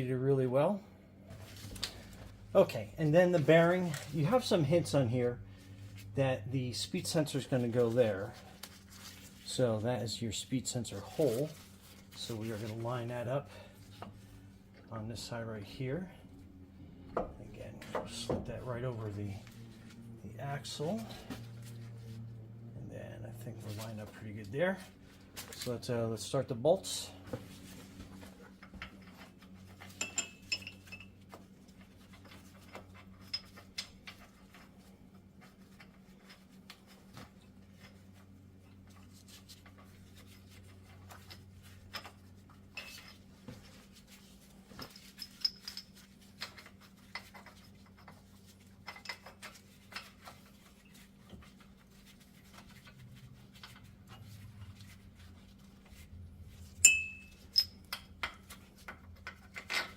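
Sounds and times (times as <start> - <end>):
steady low hum: 0.0 - 59.9
metal bolts and tools clinking: 28.6 - 31.2, 41.1 - 43.3, 44.8 - 48.2, 48.8 - 50.3, 56.8 - 59.9.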